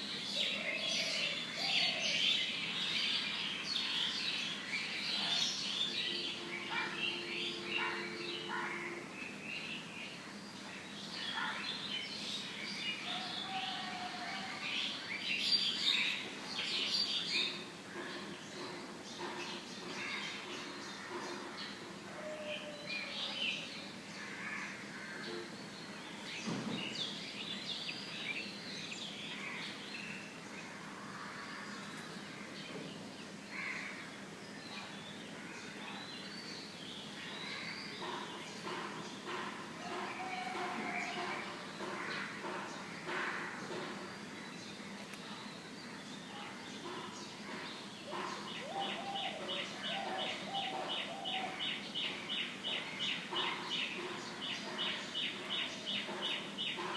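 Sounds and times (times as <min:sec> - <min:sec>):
birds chirping: 0:04.5 - 0:56.9.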